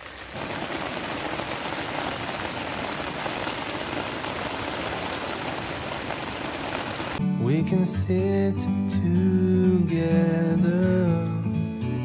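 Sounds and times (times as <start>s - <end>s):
heavy rain pounding: 0.0s - 7.2s.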